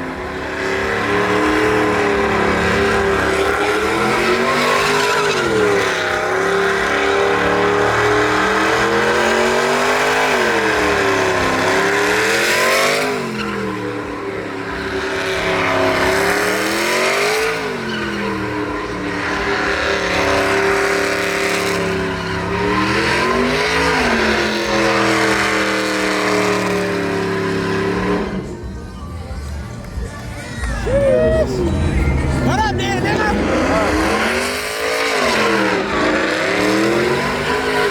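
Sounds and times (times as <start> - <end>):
truck engine revving hard: 0.0 - 29.0, 30.9 - 37.9.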